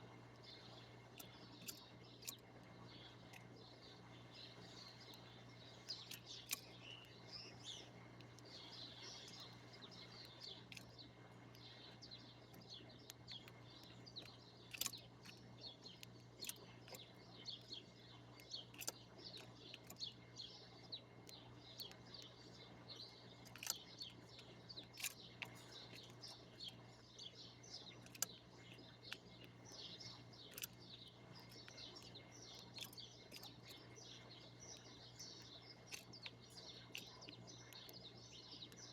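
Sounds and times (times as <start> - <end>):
small birds chirping: 0.0 - 38.9
steady low hum: 0.0 - 38.9.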